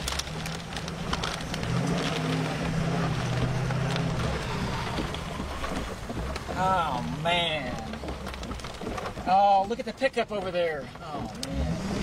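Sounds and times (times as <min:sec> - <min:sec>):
rain: 0:00.0 - 0:12.0
rain tapping on windshield: 0:00.0 - 0:12.0
vehicle engine running: 0:00.0 - 0:12.0
wind: 0:00.0 - 0:12.0.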